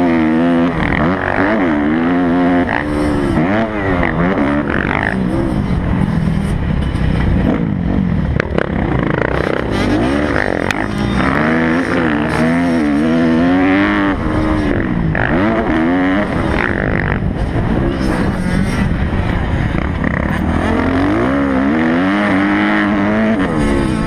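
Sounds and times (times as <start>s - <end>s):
motocross bike engine revving: 0.0s - 24.0s.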